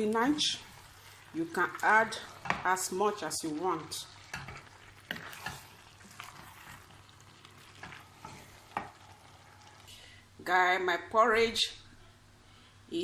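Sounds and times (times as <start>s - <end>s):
simmering food hiss: 0.0s - 10.5s
spoon clinking and scraping a pot: 4.1s - 9.1s.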